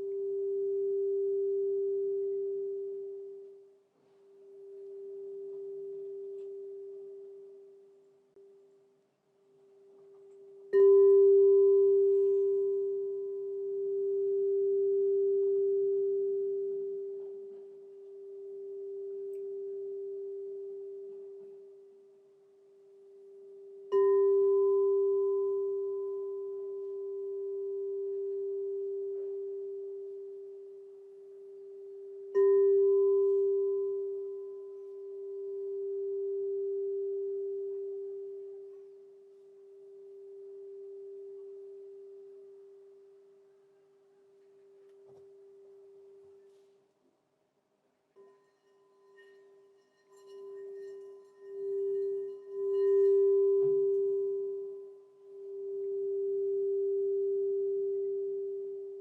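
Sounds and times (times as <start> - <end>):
crystal singing bowl ringing: 0.0 - 3.8, 4.4 - 8.0, 10.0 - 43.6, 48.2 - 59.0.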